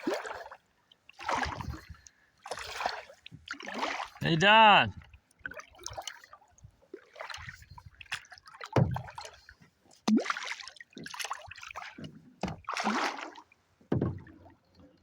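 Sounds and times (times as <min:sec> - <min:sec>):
paddle splashing in water: 0:00.0 - 0:15.0
paddle low thump: 0:08.7 - 0:09.2, 0:12.0 - 0:12.8, 0:13.8 - 0:14.6.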